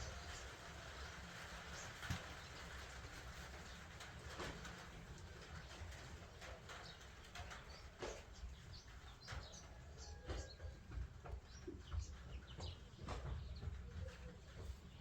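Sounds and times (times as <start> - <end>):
small birds chirping: 5.6 - 15.0
faint knocks and rustling: 10.3 - 15.0.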